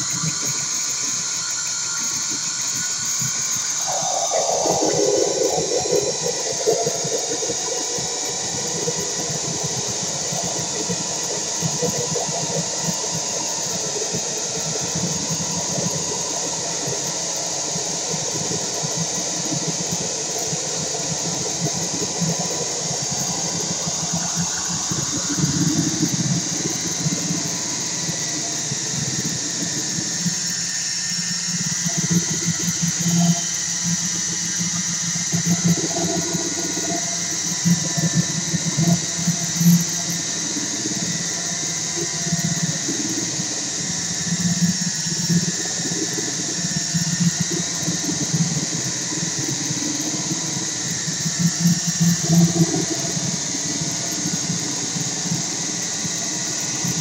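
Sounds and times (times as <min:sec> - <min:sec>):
high squeal: 0:00.0 - 0:15.7
harsh synth drone: 0:00.0 - 0:51.4.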